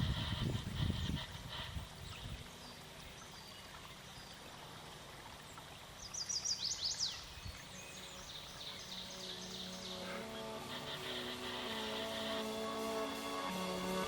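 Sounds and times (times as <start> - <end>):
faint outdoor background: 0.0 - 14.0
songbird chirping: 0.5 - 14.0.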